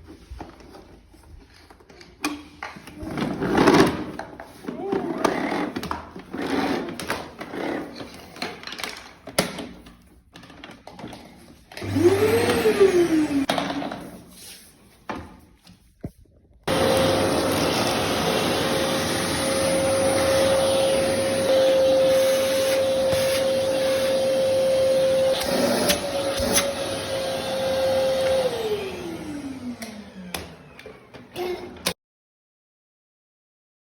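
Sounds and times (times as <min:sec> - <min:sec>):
vacuum cleaner motor whine: 0:11.7 - 0:14.1, 0:16.7 - 0:32.0.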